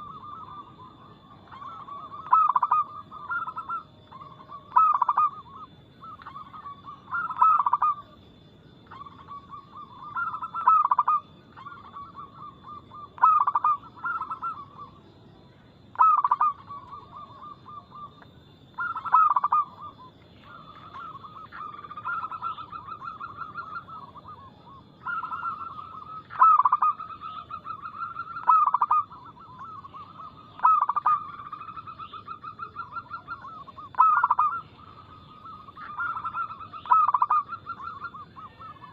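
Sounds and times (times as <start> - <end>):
dove cooing: 0.0 - 8.2, 8.9 - 15.0, 15.9 - 38.9.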